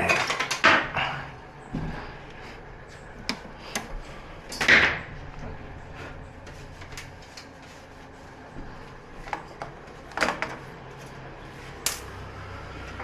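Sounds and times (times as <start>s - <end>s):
objects clicking and knocking: 0.0s - 1.0s
steady low hum: 0.0s - 13.0s.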